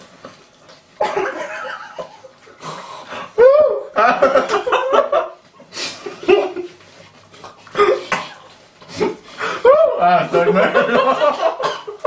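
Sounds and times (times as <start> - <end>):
people laughing: 4.0 - 5.4, 9.6 - 12.0.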